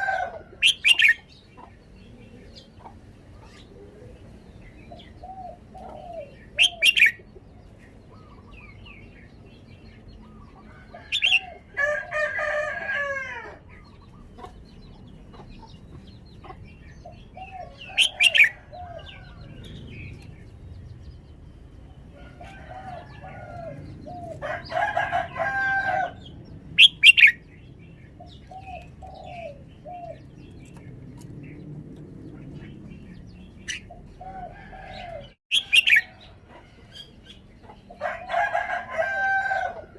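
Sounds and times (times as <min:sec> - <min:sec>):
rooster crowing: 0:00.0 - 0:00.7, 0:10.7 - 0:13.6, 0:22.2 - 0:26.2, 0:34.2 - 0:36.2, 0:38.0 - 0:39.9.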